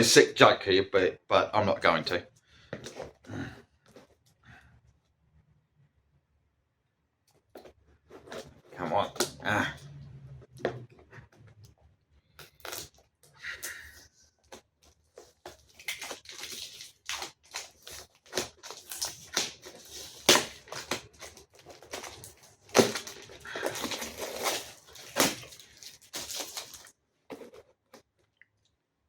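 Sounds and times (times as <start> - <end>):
cardboard box being opened by hand: 14.6 - 27.7.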